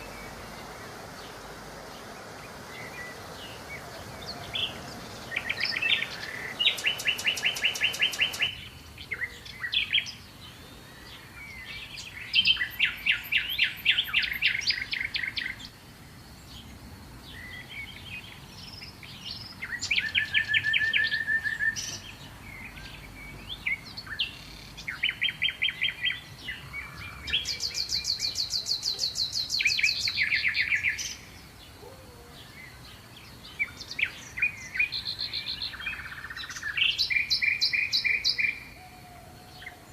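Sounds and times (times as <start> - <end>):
faint outdoor background: 0.0 - 39.9
songbirds chirping trills: 0.0 - 39.9.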